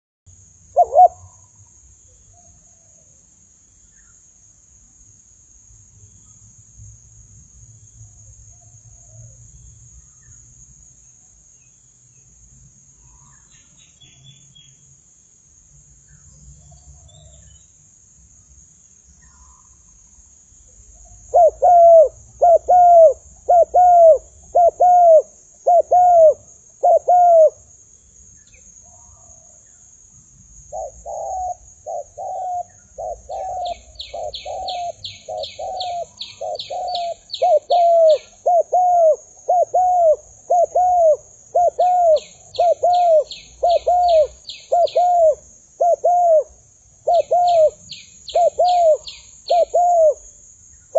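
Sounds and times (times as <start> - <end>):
dove cooing: 0.8 - 1.5, 21.3 - 27.6, 30.7 - 50.2.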